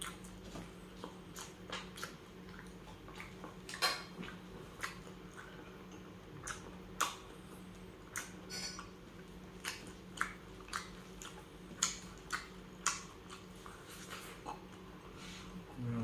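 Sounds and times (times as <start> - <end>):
chewing clicks: 0.0 - 13.8.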